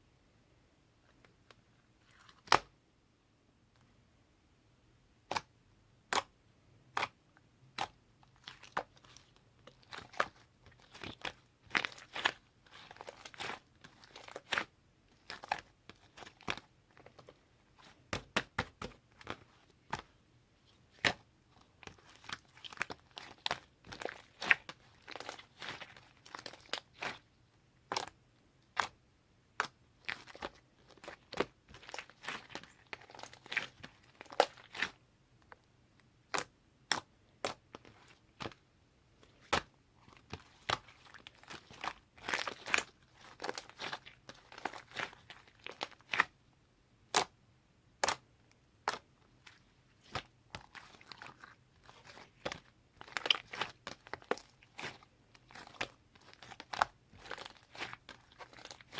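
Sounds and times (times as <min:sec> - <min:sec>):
slime crackling: 0:06.9 - 0:20.1, 0:20.8 - 0:29.0, 0:29.6 - 0:35.0, 0:39.3 - 0:46.4, 0:48.8 - 0:58.9.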